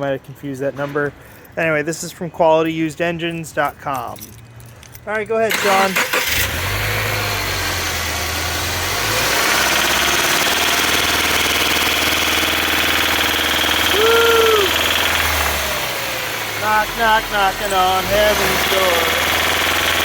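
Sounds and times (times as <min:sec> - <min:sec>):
car engine running with knock: 0:09.2 - 0:16.8, 0:18.2 - 0:20.0.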